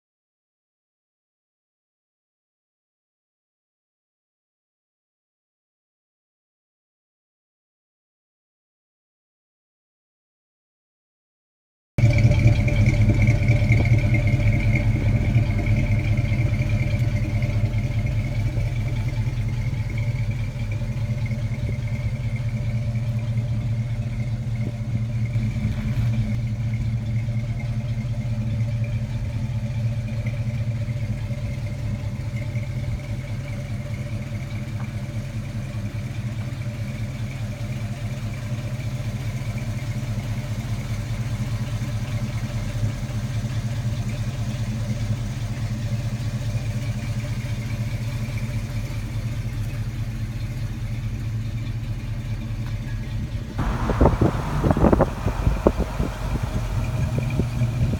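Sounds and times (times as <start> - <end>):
engine idling: 12.0 - 57.9.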